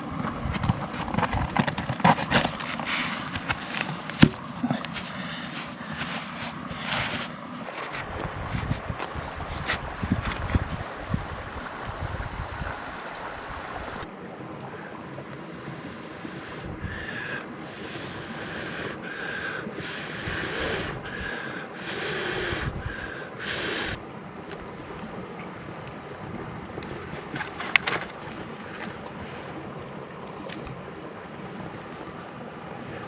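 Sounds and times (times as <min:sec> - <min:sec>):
stream water rushing: 0:00.0 - 0:33.0
wind buffeting microphone: 0:08.0 - 0:14.1, 0:22.4 - 0:23.0.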